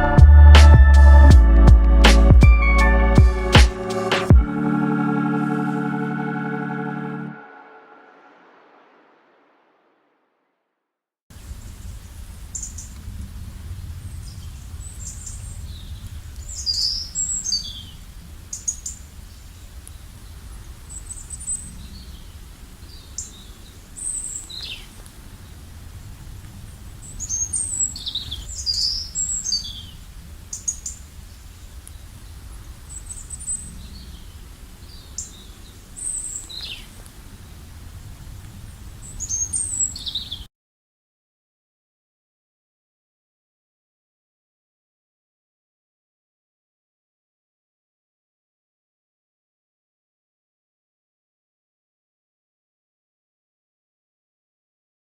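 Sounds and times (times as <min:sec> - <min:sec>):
steady low rumble: 0:00.0 - 0:04.6.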